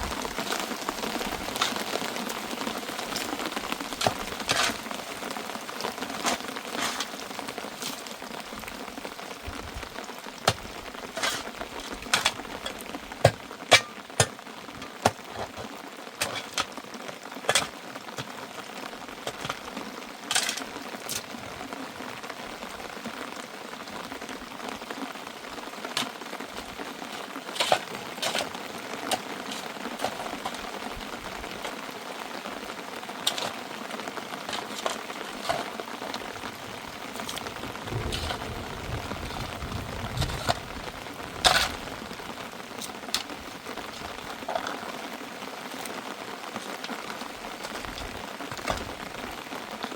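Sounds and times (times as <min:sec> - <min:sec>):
raindrops tapping a surface: 0:00.0 - 0:49.9
steady rain: 0:00.0 - 0:49.9
low rumble: 0:37.6 - 0:42.2.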